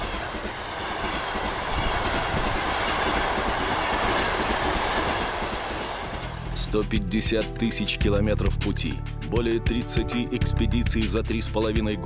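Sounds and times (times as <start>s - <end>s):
train rushing past on rails: 0.0s - 6.6s.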